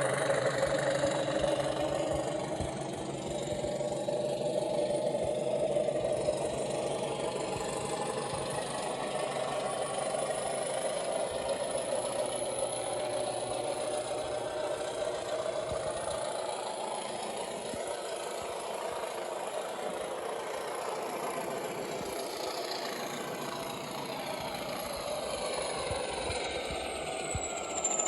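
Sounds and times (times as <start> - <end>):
diesel engine idling through small speaker: 0.0 - 28.0
high tone sliding down: 25.2 - 28.0.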